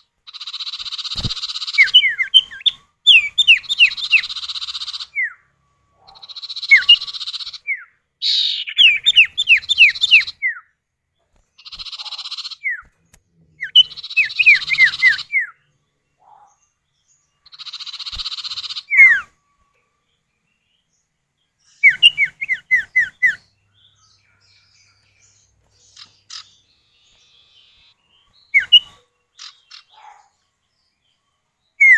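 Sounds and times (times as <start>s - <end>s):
harsh buzzy bird rasps: 0.0s - 10.7s, 11.6s - 12.9s, 13.6s - 15.6s, 17.4s - 19.4s, 21.8s - 30.4s
down-slurred whistled bird notes: 0.4s - 10.7s, 13.6s - 15.7s, 17.1s - 20.2s, 21.7s - 30.2s.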